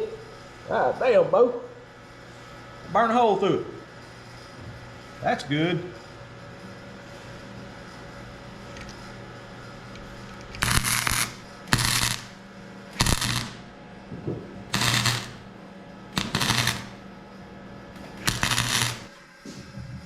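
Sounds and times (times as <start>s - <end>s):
welder humming: 8.8s - 19.6s
welding arc crackling: 10.4s - 13.7s, 14.6s - 15.6s, 16.2s - 17.1s, 18.0s - 19.1s.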